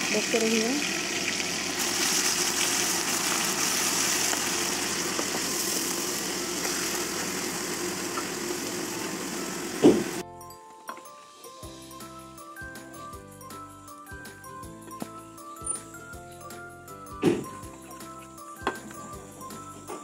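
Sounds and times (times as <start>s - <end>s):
onion paste sizzling in oil: 0.0s - 10.2s.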